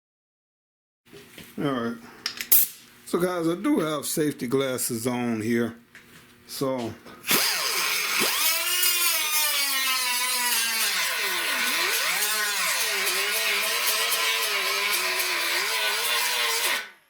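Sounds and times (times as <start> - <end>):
power grinder on metal: 7.3 - 17.0.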